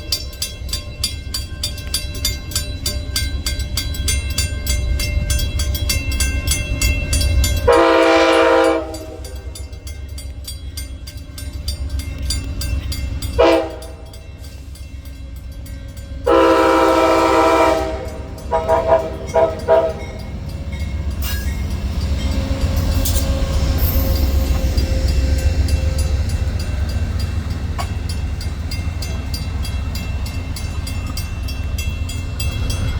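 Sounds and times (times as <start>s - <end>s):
train rumble: 0.0s - 32.9s
train horn blasts: 7.7s - 9.6s, 13.4s - 14.1s, 16.2s - 20.3s.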